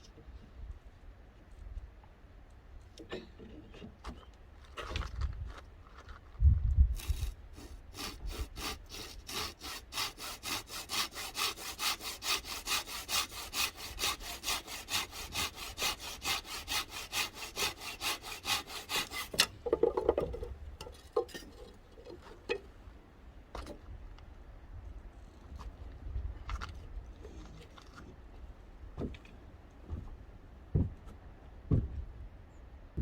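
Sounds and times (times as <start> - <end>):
hand saw cutting wood: 7.0 - 19.5
heavy knocks: 30.7 - 31.0, 31.7 - 32.1.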